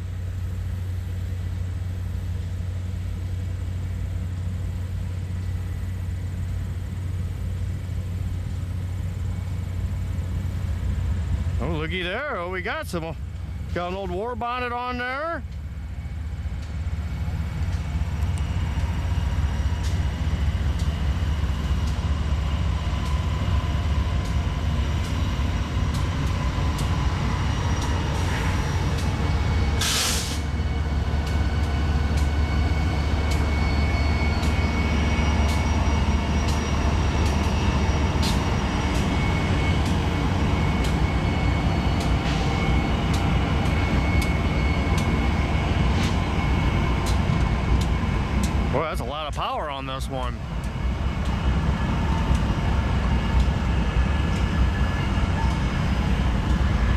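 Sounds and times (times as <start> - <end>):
diesel locomotive rumble: 0.0 - 56.9
loud air hiss: 29.8 - 30.5.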